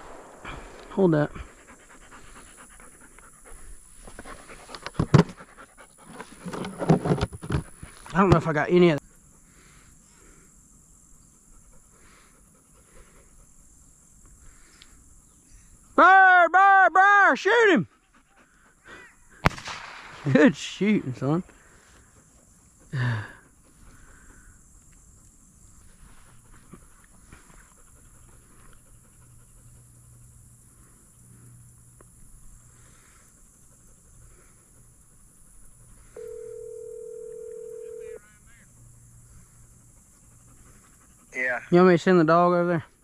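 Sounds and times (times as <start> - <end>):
low hum: 0.0 - 3.8
faint insect chorus: 0.0 - 43.0
dog panting: 0.1 - 6.6, 11.3 - 13.9, 17.9 - 19.3, 25.1 - 31.7, 32.6 - 36.1, 38.7 - 42.1.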